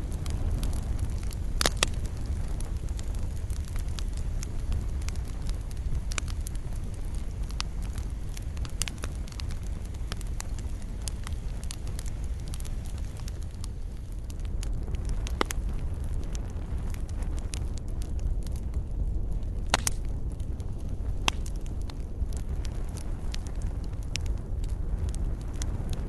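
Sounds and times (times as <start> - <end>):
campfire crackling and popping: 0.0 - 26.0
low rumble of flames: 0.0 - 26.0.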